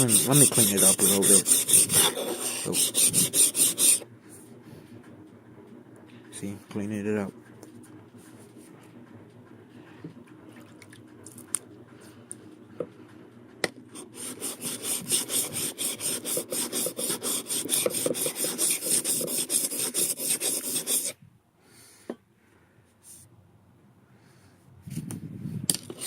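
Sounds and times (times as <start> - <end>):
chisel scraping on sharpening stone: 0.0 - 4.0, 14.0 - 21.1.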